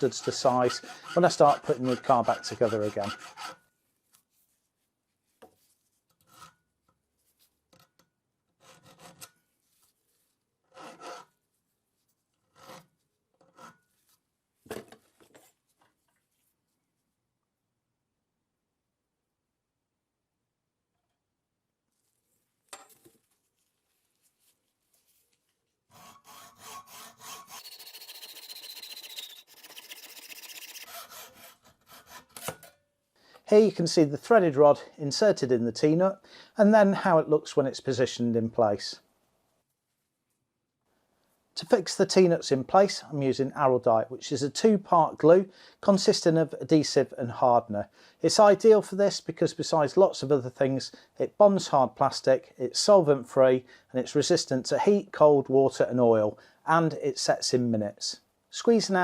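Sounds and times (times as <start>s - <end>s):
hacksaw cutting threaded rod: 0.0s - 3.6s, 25.9s - 32.7s.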